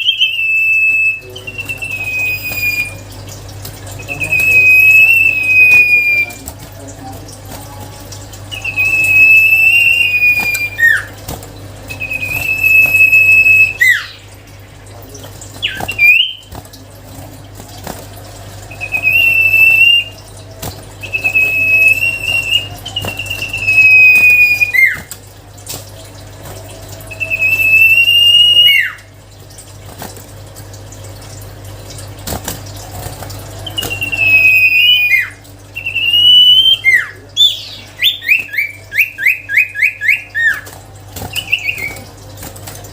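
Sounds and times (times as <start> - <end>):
bird whistling song: 0.0 - 3.1, 4.0 - 6.4, 8.5 - 11.2, 11.9 - 14.3, 15.6 - 16.5, 18.7 - 20.2, 21.0 - 25.1, 27.0 - 29.1, 33.6 - 42.2.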